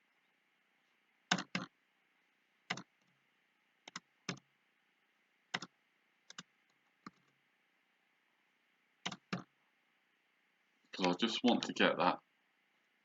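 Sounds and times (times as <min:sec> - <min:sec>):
mouse and keyboard clicks: 0:01.3 - 0:01.7, 0:02.7 - 0:03.2, 0:03.8 - 0:04.4, 0:05.5 - 0:05.7, 0:06.3 - 0:07.4, 0:09.0 - 0:09.5.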